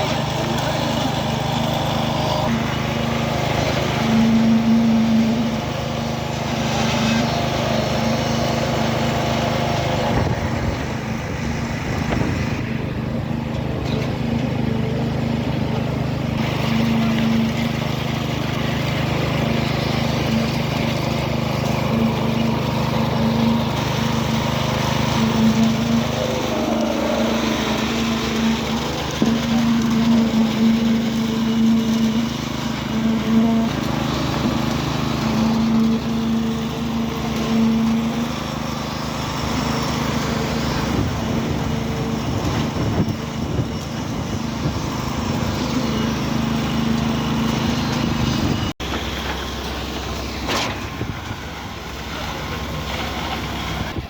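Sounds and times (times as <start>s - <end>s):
truck diesel engine humming: 0.0s - 54.0s.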